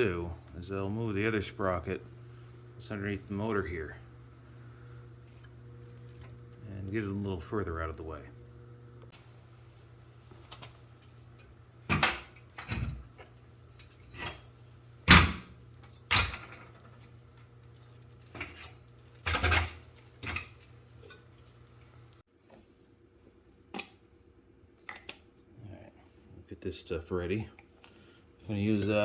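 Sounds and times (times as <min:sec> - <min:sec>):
low steady hum: 0:00.0 - 0:29.0
metal tools clanking: 0:17.7 - 0:21.6.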